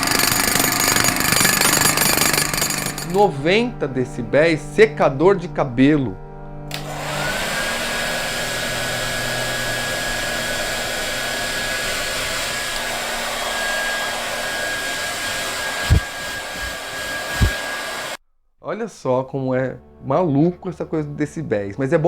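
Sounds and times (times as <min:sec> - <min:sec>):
hair dryer running: 0:00.0 - 0:03.2, 0:06.7 - 0:18.2.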